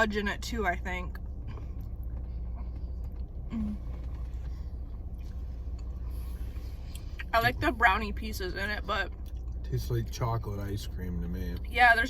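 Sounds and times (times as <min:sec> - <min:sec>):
car engine idling: 0:00.0 - 0:12.0
person humming: 0:03.5 - 0:03.8.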